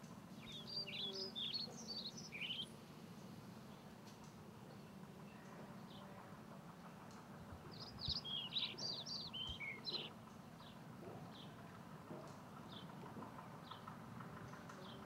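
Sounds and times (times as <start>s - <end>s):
songbird chirping: 0.2s - 6.2s, 6.9s - 11.6s.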